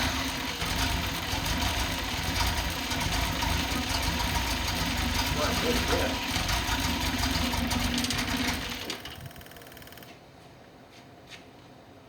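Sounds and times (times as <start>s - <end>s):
car engine idling: 0.0s - 9.5s.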